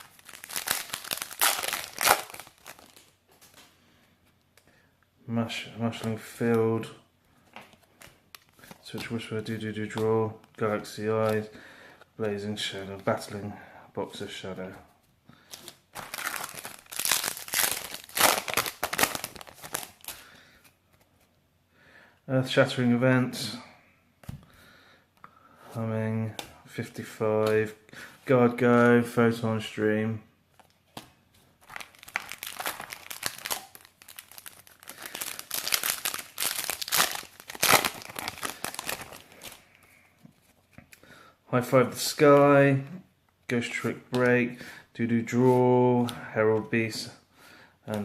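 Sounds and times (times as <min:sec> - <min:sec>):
foil wrapper crinkling and tearing: 0:00.0 - 0:03.2, 0:15.6 - 0:20.2, 0:31.6 - 0:39.6.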